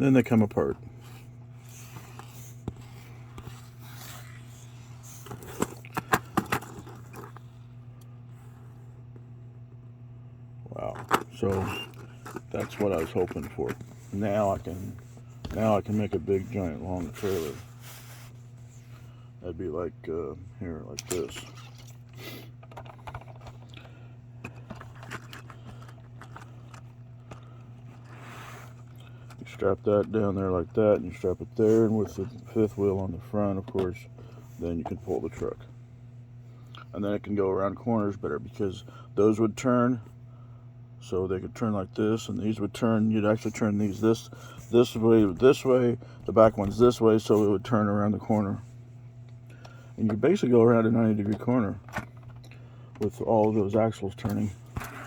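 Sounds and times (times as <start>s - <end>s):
steady low hum: 0.0s - 55.0s
plastic parts clicking and scraping: 10.9s - 14.7s, 22.6s - 29.4s.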